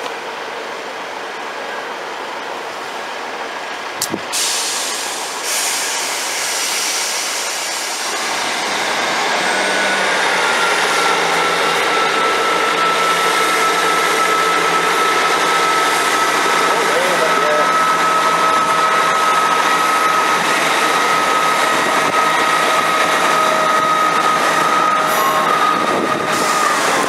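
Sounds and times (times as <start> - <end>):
train engines revving: 0.0 - 27.0
air release hiss: 4.0 - 8.2.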